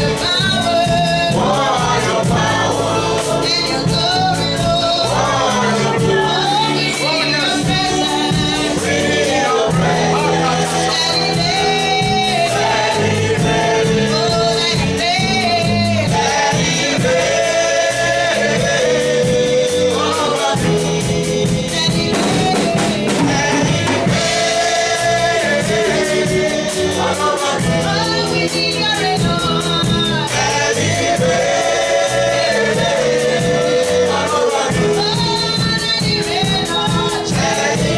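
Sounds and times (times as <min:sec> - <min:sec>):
band playing a steady beat: 0:00.0 - 0:37.9
choir singing: 0:00.0 - 0:37.9.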